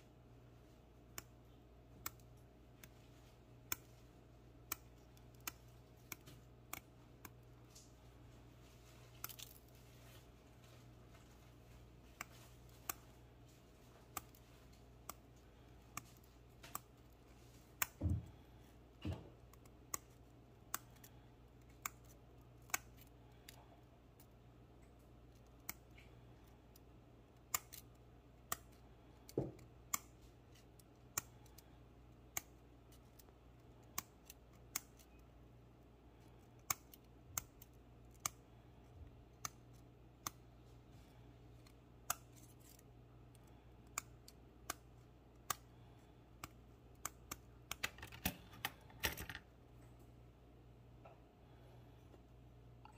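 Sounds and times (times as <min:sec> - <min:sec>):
scissors snipping wire mesh: 0:27.4 - 0:31.6, 0:33.9 - 0:35.2.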